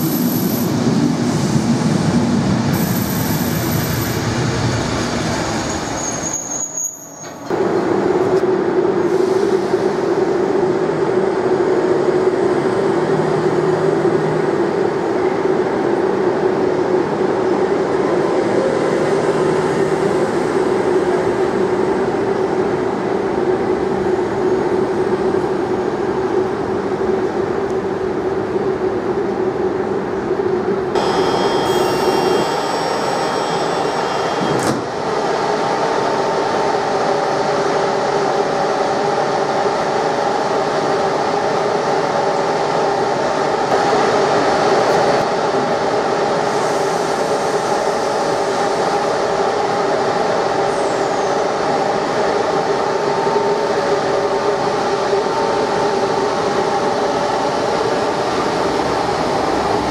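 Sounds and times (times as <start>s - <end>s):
train rumbling: 0.0s - 6.6s, 7.2s - 59.9s
high steady whining tones: 31.0s - 35.4s.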